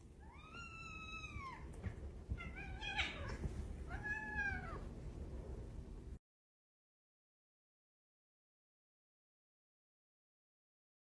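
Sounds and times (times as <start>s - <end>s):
low background rumble: 0.0s - 6.2s
cat meowing: 0.2s - 1.7s, 2.4s - 4.8s.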